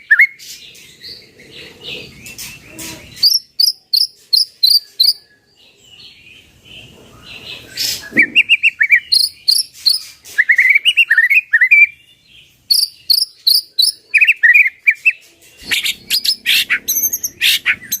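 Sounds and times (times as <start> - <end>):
bird singing chirps and whistles: 0.0 - 0.6, 2.2 - 5.5, 7.7 - 12.1, 12.7 - 18.0.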